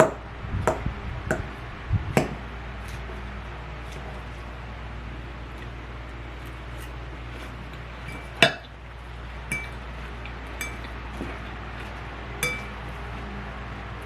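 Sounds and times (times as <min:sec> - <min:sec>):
utensil clinking against dish: 0:08.0 - 0:08.7, 0:09.5 - 0:09.9, 0:10.5 - 0:11.5, 0:12.4 - 0:13.0.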